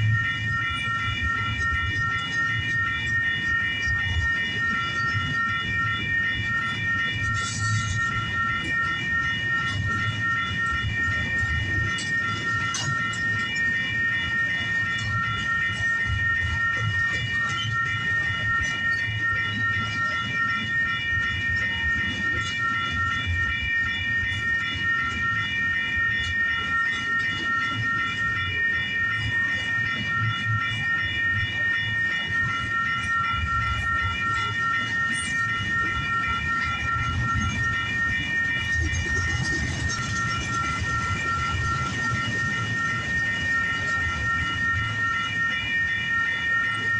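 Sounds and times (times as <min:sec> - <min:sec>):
freight train wheels rumbling: 0:35.7 - 0:44.7.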